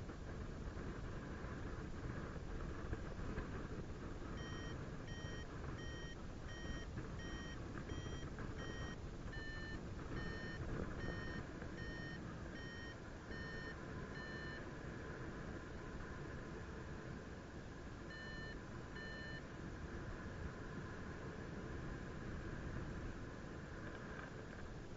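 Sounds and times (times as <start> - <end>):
variometer beeping: 4.3 - 14.8, 18.0 - 19.5.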